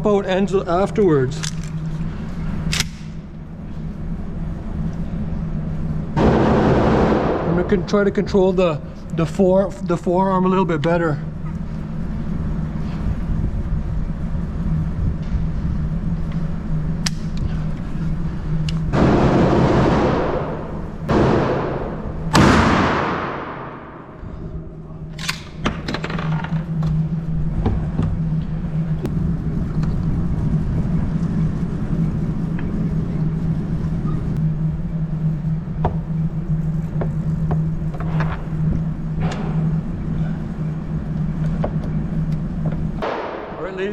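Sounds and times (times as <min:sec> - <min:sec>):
steady low hum: 0:00.0 - 0:43.9
gun handling clicks: 0:01.4 - 0:01.8, 0:02.7 - 0:03.2, 0:25.1 - 0:25.6
echoing shotgun shots: 0:06.2 - 0:08.0, 0:19.0 - 0:24.0, 0:43.0 - 0:43.7.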